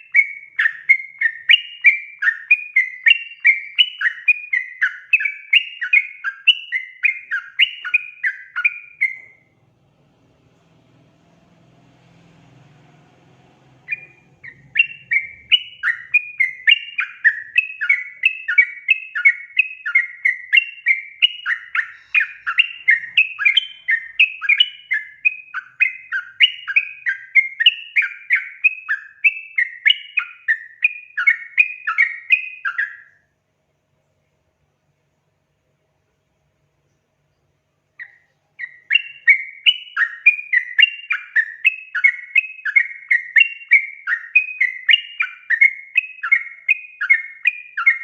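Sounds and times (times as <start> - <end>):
bird singing chattering notes: 13.7 - 30.4.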